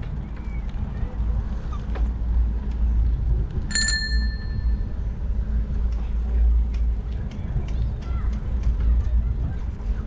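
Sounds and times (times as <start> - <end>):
steady low rumble: 0.0 - 10.0
bicycle bell ringing: 3.7 - 4.9.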